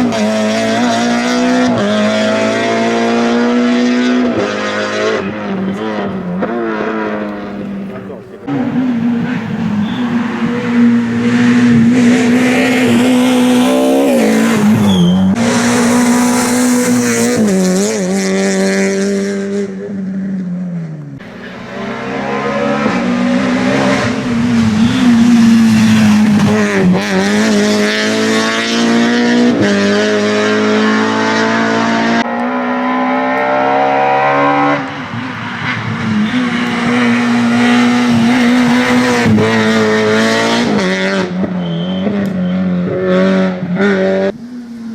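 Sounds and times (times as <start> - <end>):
rally car engine at high revs: 0.0 - 44.9.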